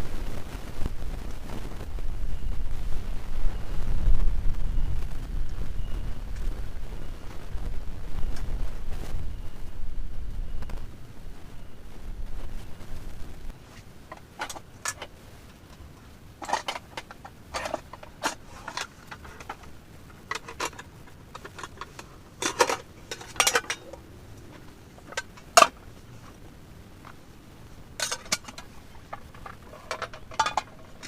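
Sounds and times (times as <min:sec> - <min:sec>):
pots and utensils clinking: 0:14.1 - 0:15.1, 0:16.4 - 0:25.8, 0:28.0 - 0:31.0.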